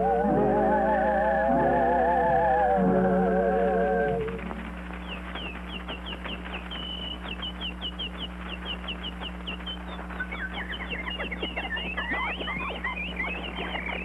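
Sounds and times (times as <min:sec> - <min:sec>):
steady low hum: 0:00.0 - 0:14.0
high bird chirps: 0:04.9 - 0:14.0.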